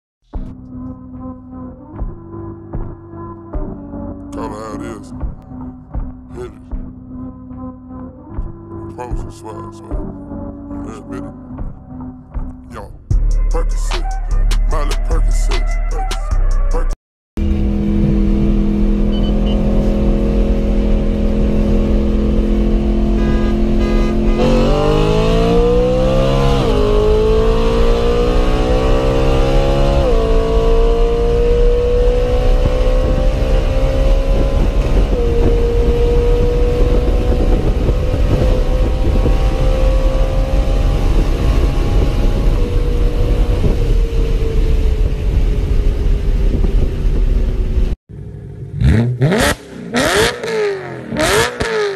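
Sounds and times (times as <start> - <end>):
car engine accelerating: 17.4 - 51.9.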